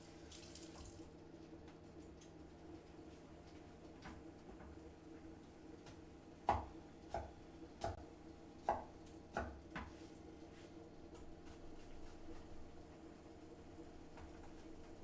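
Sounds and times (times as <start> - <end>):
knife chopping on cutting board: 5.8 - 8.0, 8.6 - 10.0.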